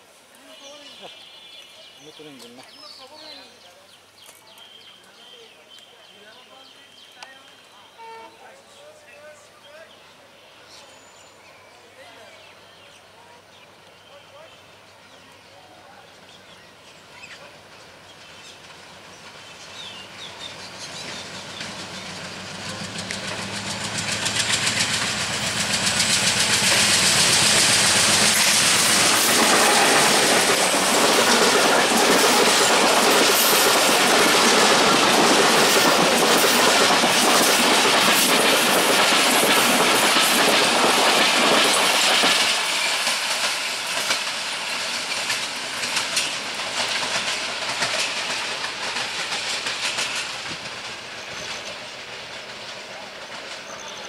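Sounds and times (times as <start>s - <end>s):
train wheels clickety-clack: 16.2s - 54.0s
locomotive engine hum: 17.6s - 38.7s.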